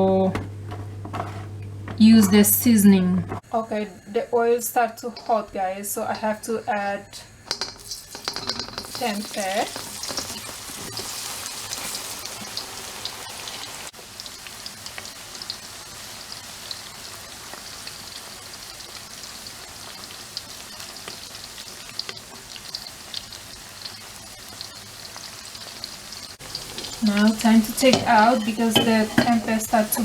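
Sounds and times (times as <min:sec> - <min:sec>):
food sizzling in hot oil: 0:07.2 - 0:30.0.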